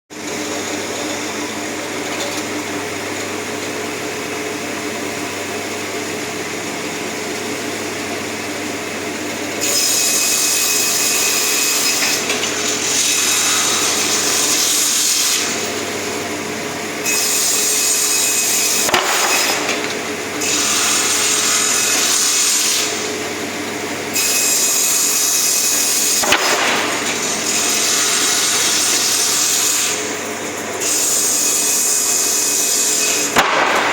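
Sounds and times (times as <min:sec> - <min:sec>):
saw motor humming: 0:09.0 - 0:33.9
saw cutting wood: 0:09.5 - 0:16.3, 0:16.9 - 0:23.4, 0:24.1 - 0:33.9.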